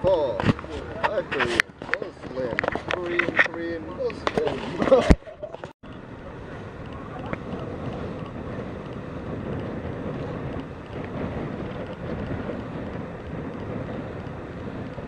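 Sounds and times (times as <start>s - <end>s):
boat engine rumble: 0.0s - 15.0s
wind buffeting microphone: 0.0s - 15.0s.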